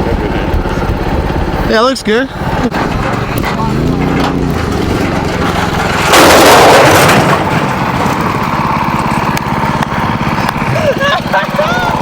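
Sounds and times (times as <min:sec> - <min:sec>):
vehicle engine running: 0:00.0 - 0:12.0
loud crash: 0:02.7 - 0:08.4.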